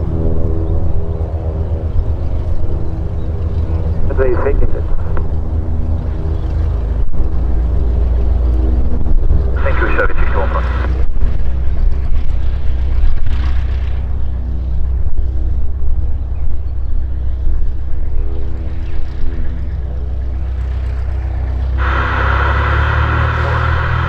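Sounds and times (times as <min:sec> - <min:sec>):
airplane piston engine droning: 0:00.0 - 0:24.0
steady hiss: 0:21.8 - 0:24.0.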